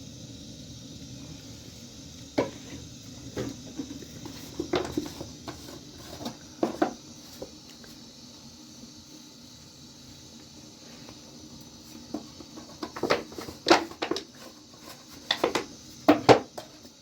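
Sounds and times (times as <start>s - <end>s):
steady hiss: 0.0s - 17.0s
objects knocking and clattering: 2.4s - 7.0s, 12.1s - 16.9s.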